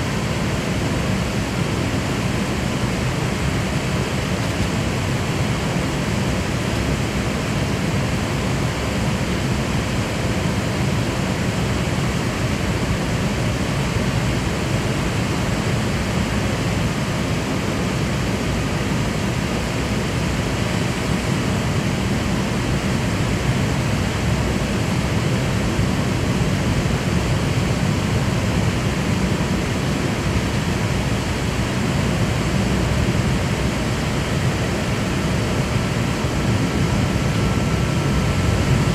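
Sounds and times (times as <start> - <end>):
airliner cabin noise: 9.9 - 38.9.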